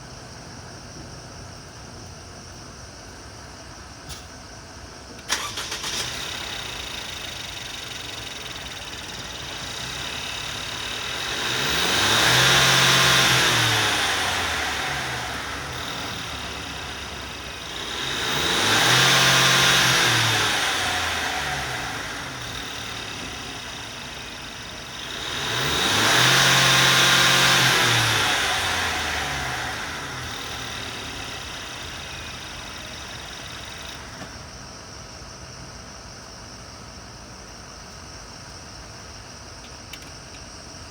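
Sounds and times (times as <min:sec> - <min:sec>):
van engine cranking: 0:05.2 - 0:34.4
van engine idling and revving: 0:05.2 - 0:34.9.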